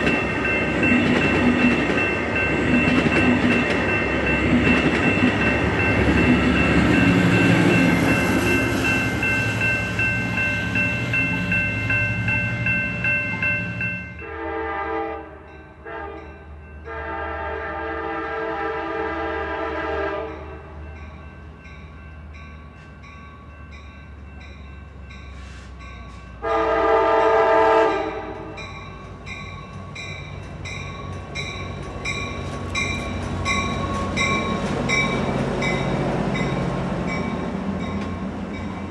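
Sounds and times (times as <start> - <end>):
passenger train passing: 0.0 - 38.9
locomotive horn blasts: 14.2 - 20.5, 26.4 - 28.6.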